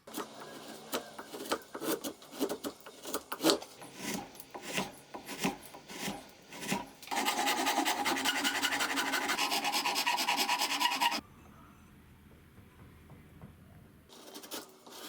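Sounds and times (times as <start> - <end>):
hand file scraping: 0.1 - 11.2.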